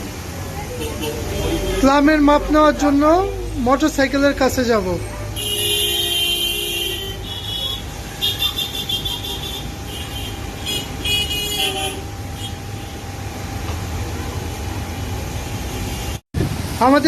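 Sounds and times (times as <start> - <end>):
road traffic rumble: 0.0 - 17.0
vehicle horns honking: 5.3 - 13.0.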